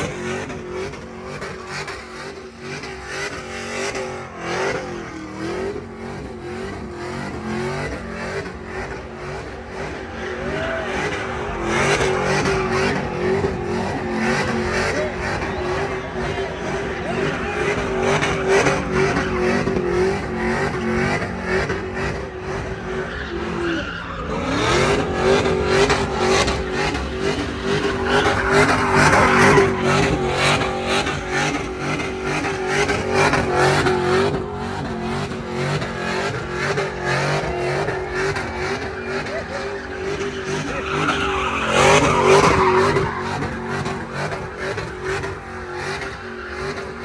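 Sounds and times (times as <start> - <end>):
tires spinning and squealing: 0.0 - 47.0
truck engine at high revs: 0.0 - 47.0.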